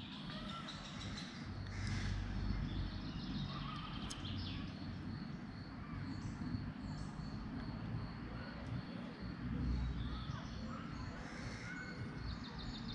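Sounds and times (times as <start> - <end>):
bird chirps: 0.0 - 7.5.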